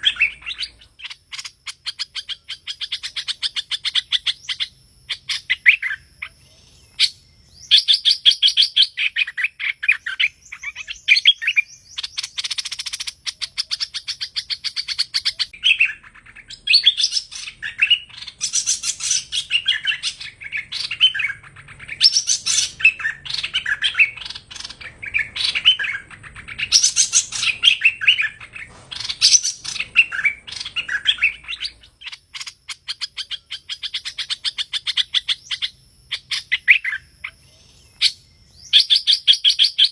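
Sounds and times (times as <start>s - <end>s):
bird chirping: 0.0s - 39.9s
buzzy bird call: 0.0s - 39.9s.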